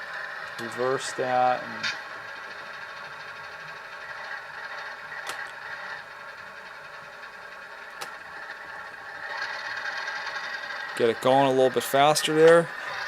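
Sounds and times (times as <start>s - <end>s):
model locomotive diesel engine sound: 0.0s - 13.0s
sharp clicks: 7.9s - 8.2s.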